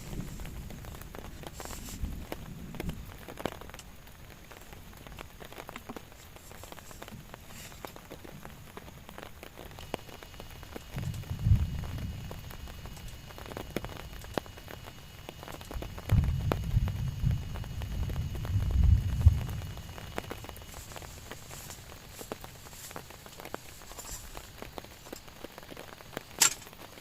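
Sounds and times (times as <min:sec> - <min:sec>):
rain drops ticking: 0:00.0 - 0:27.0
low rumbling: 0:15.8 - 0:24.6.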